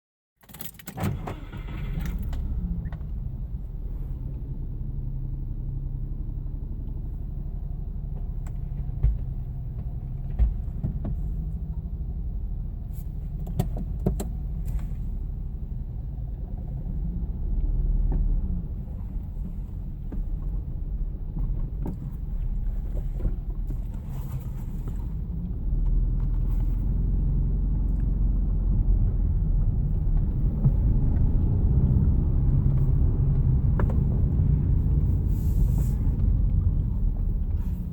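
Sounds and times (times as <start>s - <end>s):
car engine misfiring: 0.4s - 3.4s.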